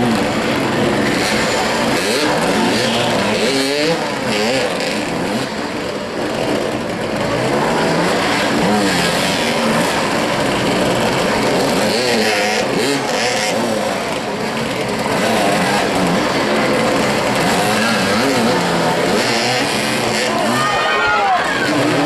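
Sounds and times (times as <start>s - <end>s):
motorcycles revving: 0.0s - 22.0s.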